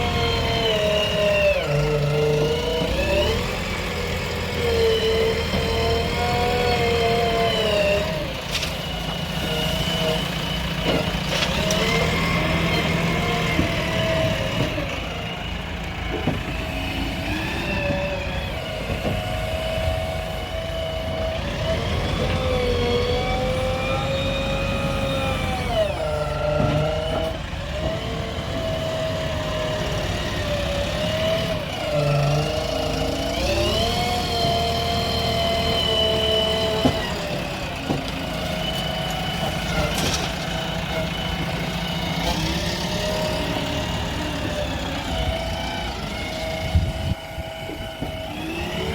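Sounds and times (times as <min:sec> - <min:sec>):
diesel engine revving: 0:00.0 - 0:48.9.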